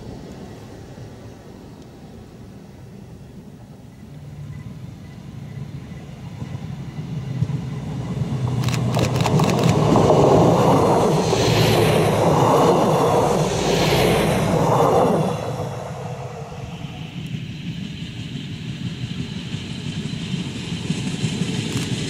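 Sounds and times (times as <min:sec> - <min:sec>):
train engine drone: 0:00.0 - 0:22.0
train rushing past: 0:00.0 - 0:22.0
train wheels on rails: 0:00.0 - 0:22.0
sharp clicks: 0:08.6 - 0:09.9.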